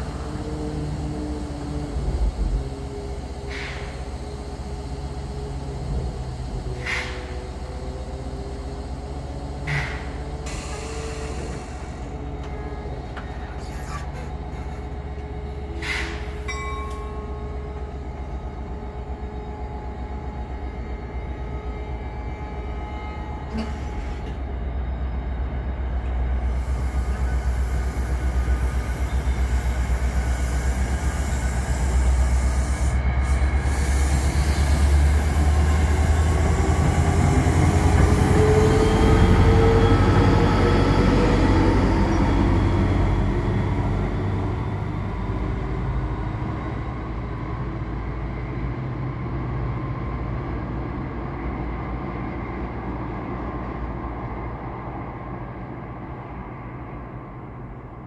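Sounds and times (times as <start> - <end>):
diesel locomotive engine: 0.0 - 58.0
train coaches rumbling over rails: 0.0 - 58.0.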